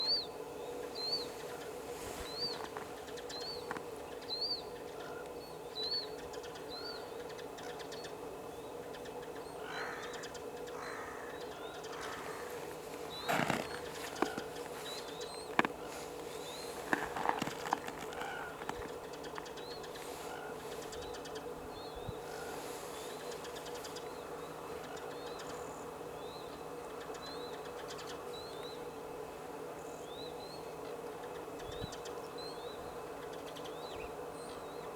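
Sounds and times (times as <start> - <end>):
steady low hum: 0.0 - 34.9
small bird chirping: 11.6 - 20.0
rustling: 12.0 - 19.0.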